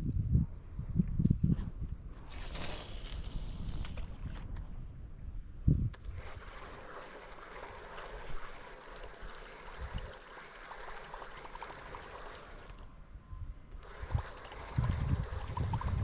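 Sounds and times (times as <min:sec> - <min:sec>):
water gurgling around canoe: 0:06.1 - 0:12.8, 0:13.8 - 0:16.0.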